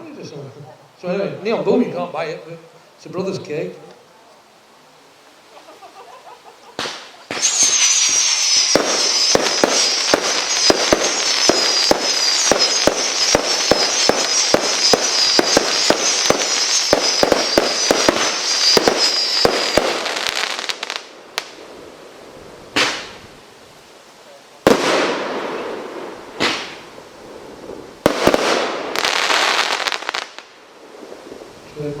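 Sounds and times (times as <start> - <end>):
firework bangs: 6.8 - 21.8, 22.7 - 23.3, 24.6 - 31.4
shrill wavering firework whistle: 7.3 - 21.0.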